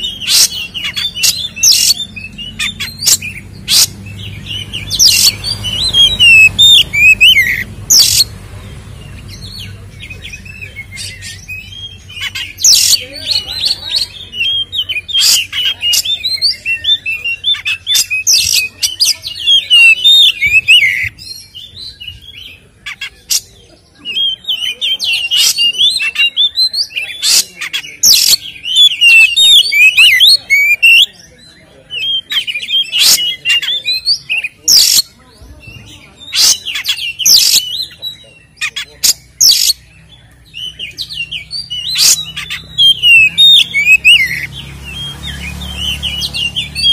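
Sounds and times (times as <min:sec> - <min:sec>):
bird singing whistles: 0:39.4 - 0:46.9.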